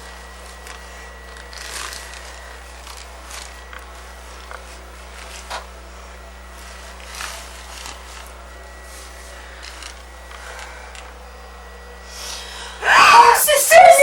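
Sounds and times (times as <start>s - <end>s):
low electrical hum: 0.0s - 14.0s
soft rustles: 6.6s - 11.0s.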